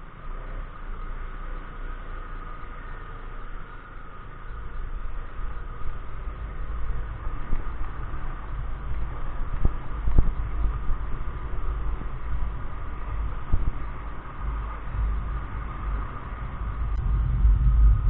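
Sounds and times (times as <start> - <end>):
scooter engine drone: 0.0 - 18.0
wind buffeting microphone: 4.1 - 18.0.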